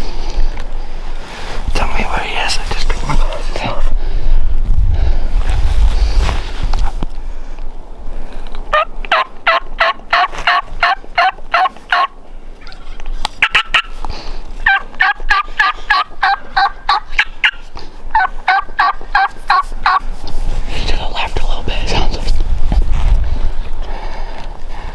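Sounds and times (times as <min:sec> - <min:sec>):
turkey yelping: 0:08.7 - 0:14.0, 0:14.6 - 0:20.0.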